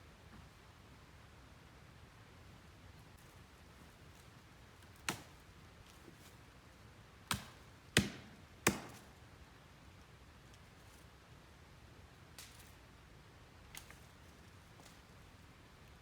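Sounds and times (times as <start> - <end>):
axe chopping wood: 5.0 - 5.3, 7.3 - 9.1.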